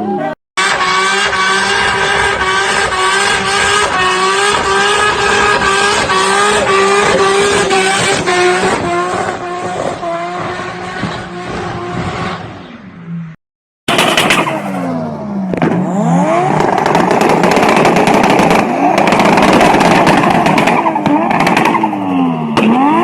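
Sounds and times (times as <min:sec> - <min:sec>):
turbocharged car engine revving: 0:00.0 - 0:12.6, 0:13.9 - 0:23.0
exhaust crackling pops: 0:15.5 - 0:22.8.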